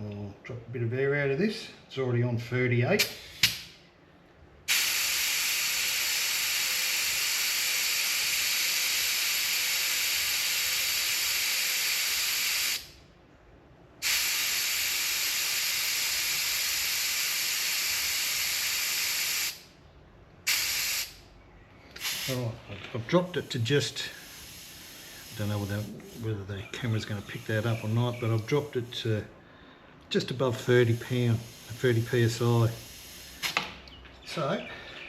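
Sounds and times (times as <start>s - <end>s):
air hissing from tyre valve: 3.0s - 3.7s, 4.7s - 13.0s, 14.0s - 19.7s, 20.4s - 21.2s, 22.0s - 22.5s, 23.1s - 26.4s, 27.0s - 29.2s, 30.6s - 33.7s.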